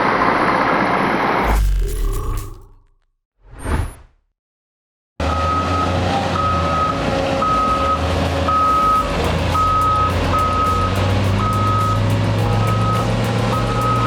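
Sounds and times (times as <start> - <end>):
heavy vehicle engine running: 5.2 - 14.0
reversing alarm beeping: 5.3 - 14.0.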